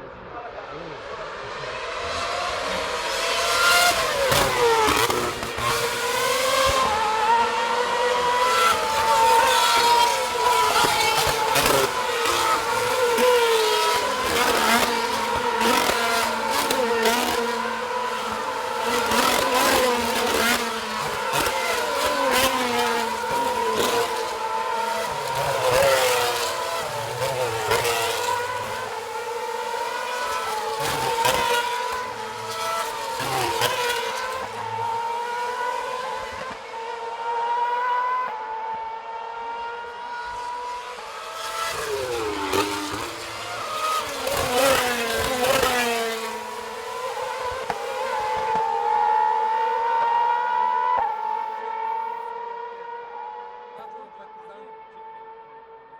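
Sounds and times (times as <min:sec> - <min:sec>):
racing car engines screaming past: 0:00.0 - 0:55.8
racing car gear changes: 0:08.3 - 0:35.7.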